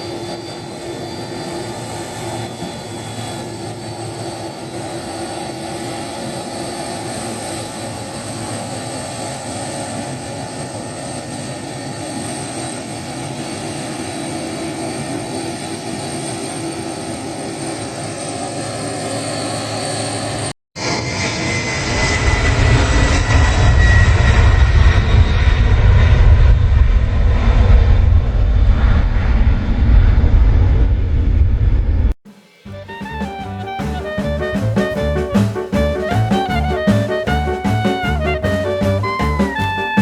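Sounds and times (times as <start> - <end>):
airliner engines running: 0.0 - 30.0.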